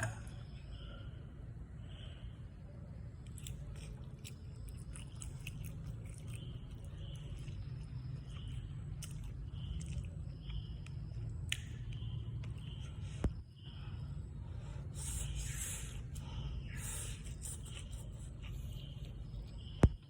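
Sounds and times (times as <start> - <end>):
steady low hum: 0.0 - 20.0
chewing and biting clicks: 3.2 - 13.4.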